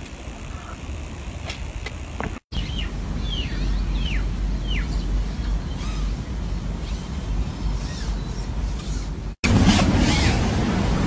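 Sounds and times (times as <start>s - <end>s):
steady low rumble: 0.0s - 7.7s.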